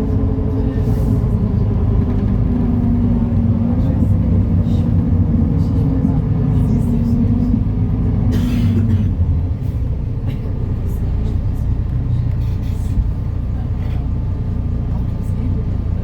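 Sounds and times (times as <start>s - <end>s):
bus diesel engine rumbling: 0.0s - 16.0s.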